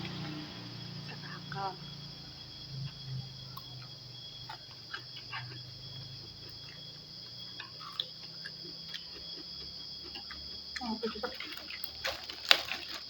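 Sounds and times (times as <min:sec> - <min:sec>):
night insects chirring: 0:00.0 - 0:13.0
chewing and utensil clicks: 0:03.5 - 0:12.9.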